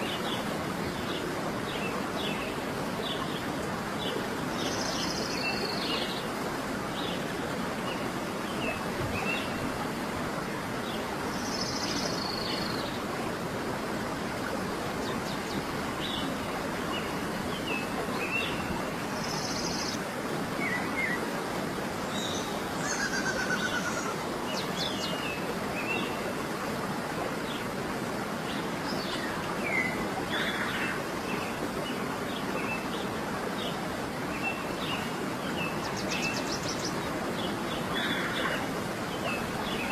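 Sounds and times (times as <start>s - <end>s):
wild birds chirping: 22.1s - 26.0s, 34.4s - 39.9s.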